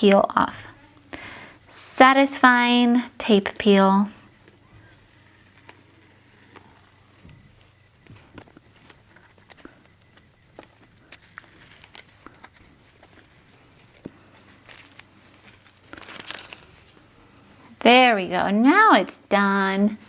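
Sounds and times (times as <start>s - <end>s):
tape peeling off paper: 3.2s - 17.3s.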